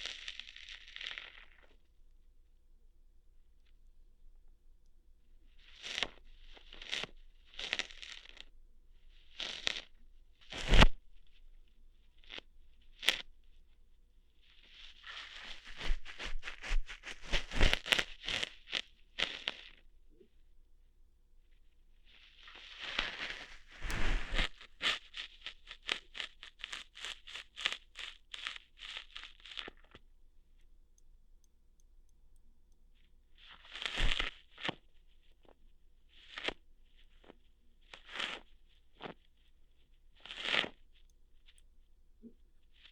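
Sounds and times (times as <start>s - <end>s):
scratchy tearing plucking sounds: 14.7s - 19.8s, 22.4s - 30.0s, 33.5s - 34.8s, 40.2s - 40.8s.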